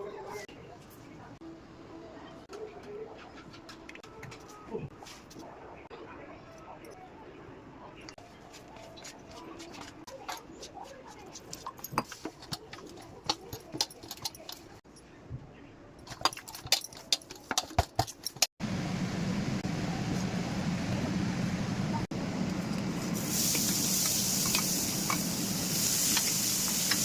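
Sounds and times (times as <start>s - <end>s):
kitchen utensils clinking: 9.8s - 14.8s, 16.0s - 18.5s.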